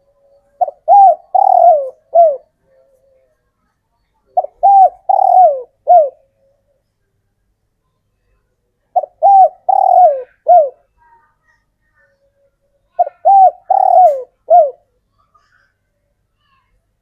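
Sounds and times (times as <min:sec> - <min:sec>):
dove cooing: 0:00.0 - 0:03.3, 0:04.3 - 0:06.8, 0:08.9 - 0:10.9, 0:12.9 - 0:14.9.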